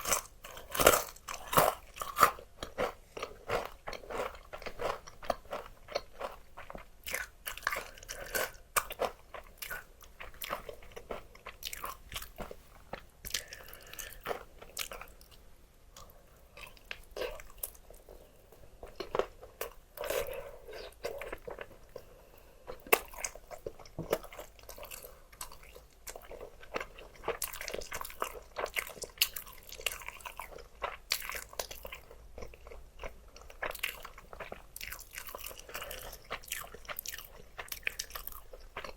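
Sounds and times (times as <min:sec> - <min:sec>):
crunching fried chicken: 0:22.9 - 0:38.9.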